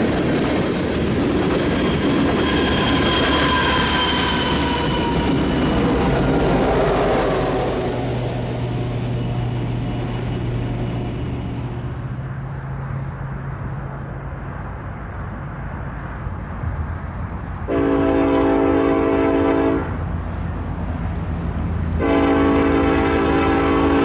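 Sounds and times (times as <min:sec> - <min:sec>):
diesel locomotives rumbling: 0:00.0 - 0:24.0
train air horn blast: 0:01.8 - 0:08.9, 0:17.7 - 0:20.0, 0:22.0 - 0:24.0.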